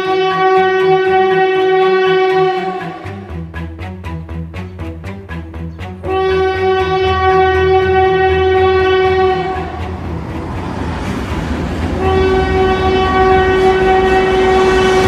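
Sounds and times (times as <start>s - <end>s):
train horn blasts: 0.0s - 3.5s, 6.0s - 15.0s
moving train rumble: 5.8s - 15.0s.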